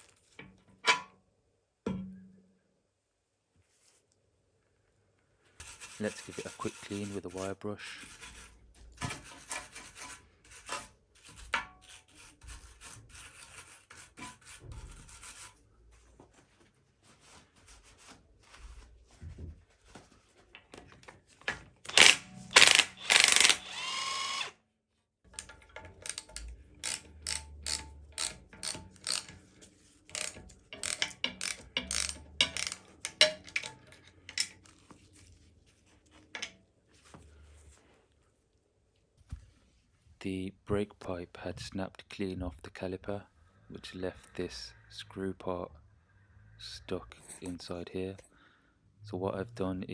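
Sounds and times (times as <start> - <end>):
wire brush scrubbing metal: 5.6 - 15.6, 26.0 - 33.7
sharp clicks and knocks: 25.3 - 29.4, 30.1 - 34.6.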